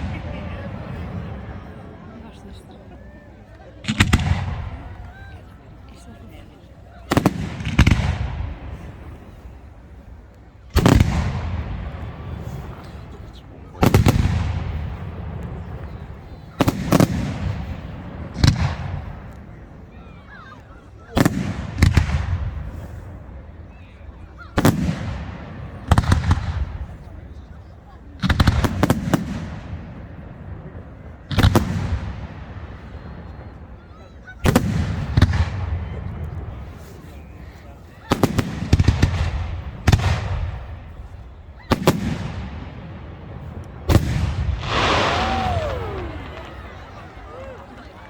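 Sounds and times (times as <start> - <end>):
fireworks banging: 3.8 - 5.2, 7.1 - 9.2, 10.7 - 19.5, 28.2 - 33.4, 34.4 - 48.0.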